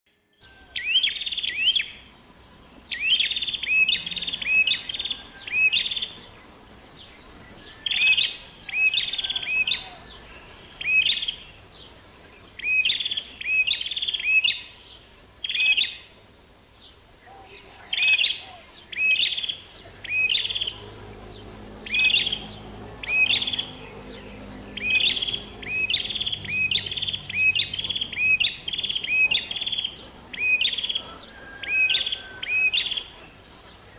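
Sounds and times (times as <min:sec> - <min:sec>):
bird chirping: 0:00.1 - 0:33.9.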